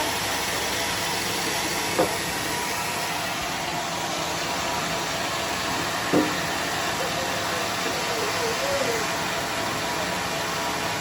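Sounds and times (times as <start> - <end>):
sawmill machinery running: 0.0 - 11.0
sharp knock: 6.1 - 6.4.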